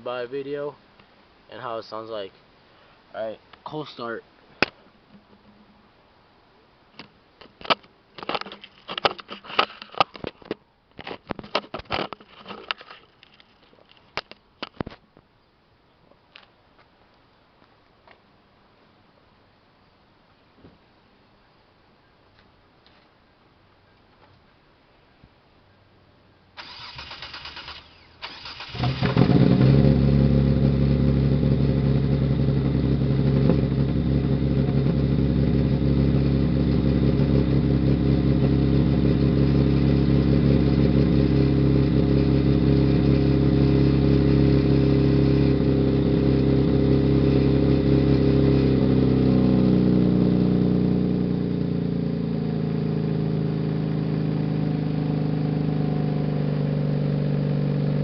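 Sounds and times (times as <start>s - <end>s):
starter motor cranking: 26.6s - 29.3s
car engine idling: 26.6s - 47.0s.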